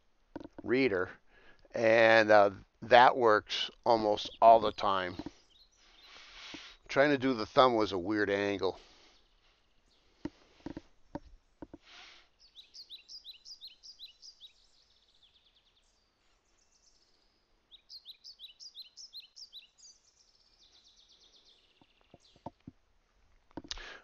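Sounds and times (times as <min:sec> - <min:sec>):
songbird singing faintly: 0:00.0 - 0:24.0
faint clicks: 0:23.5 - 0:24.0.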